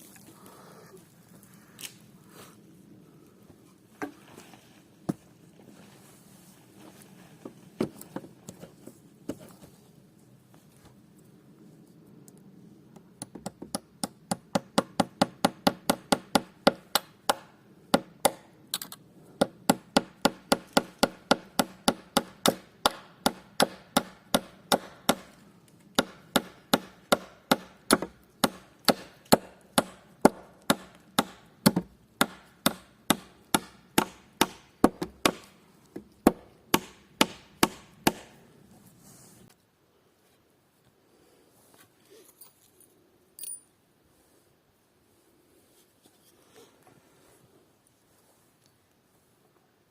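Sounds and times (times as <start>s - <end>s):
hand tool striking wood: 19.4s - 25.3s, 26.0s - 38.4s.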